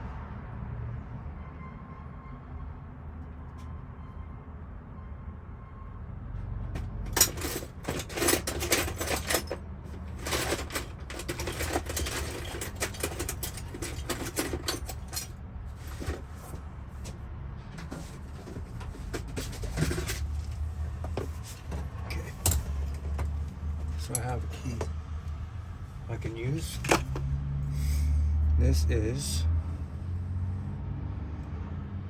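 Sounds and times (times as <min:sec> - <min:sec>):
metal keys jangling: 0:07.0 - 0:16.6, 0:21.2 - 0:24.9.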